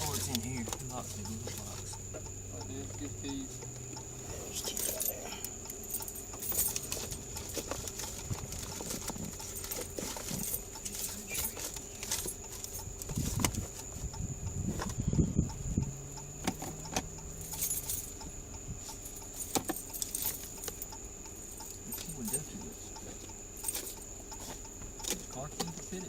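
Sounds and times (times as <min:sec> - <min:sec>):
keys jangling and clicking: 0:04.5 - 0:13.4, 0:16.6 - 0:18.2, 0:18.9 - 0:25.7.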